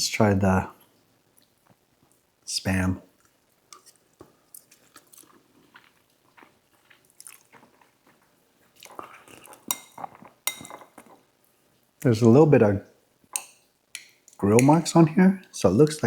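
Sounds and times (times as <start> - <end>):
person chewing food: 3.2 - 11.3.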